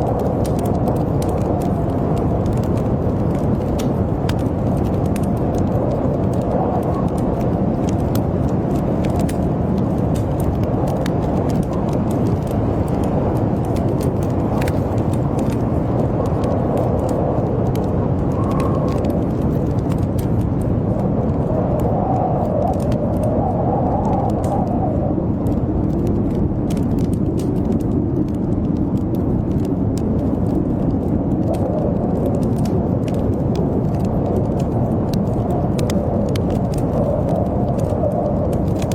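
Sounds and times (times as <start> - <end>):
howling blizzard wind: 0.0 - 38.9
wood fire crackling: 0.0 - 38.9.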